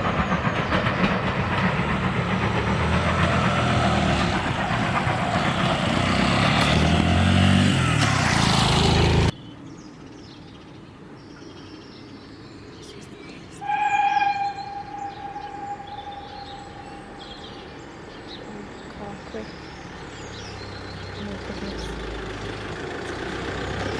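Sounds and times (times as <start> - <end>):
loud rumbling engine: 0.0 - 9.3, 13.6 - 23.9
steam locomotive whistle: 13.6 - 18.0.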